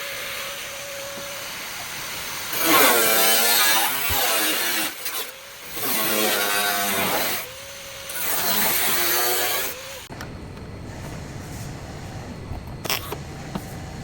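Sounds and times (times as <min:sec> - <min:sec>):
power tool cutting metal: 0:00.0 - 0:10.1.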